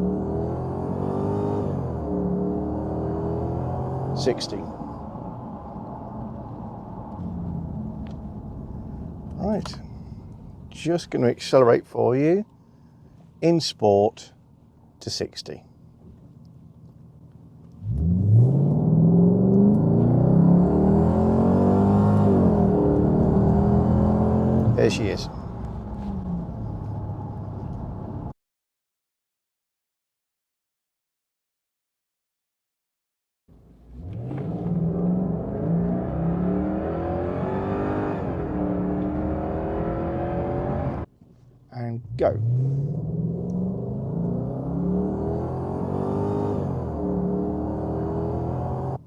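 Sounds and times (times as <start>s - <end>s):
car engine accelerating: 0.0s - 10.8s, 17.4s - 28.3s, 33.5s - 41.1s, 42.0s - 49.0s.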